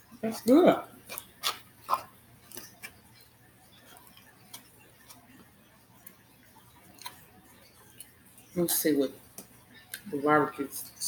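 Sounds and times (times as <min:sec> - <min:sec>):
person chewing: 0:00.3 - 0:03.2, 0:03.9 - 0:05.4, 0:06.0 - 0:08.1.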